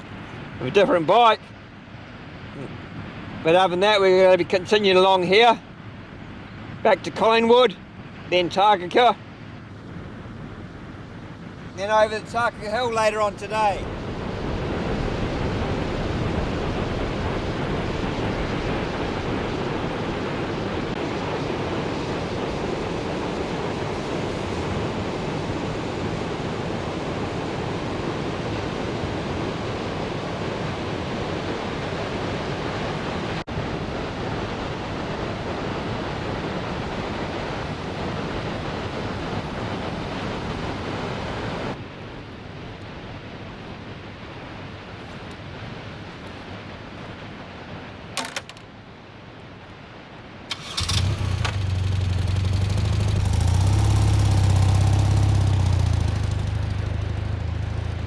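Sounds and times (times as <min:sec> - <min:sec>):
wind noise on microphone: 0:09.4 - 0:48.2.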